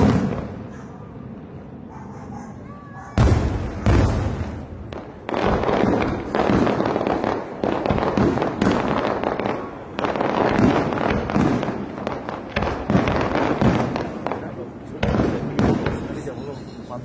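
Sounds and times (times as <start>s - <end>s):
firework crackling: 0.0s - 0.6s, 3.1s - 17.0s.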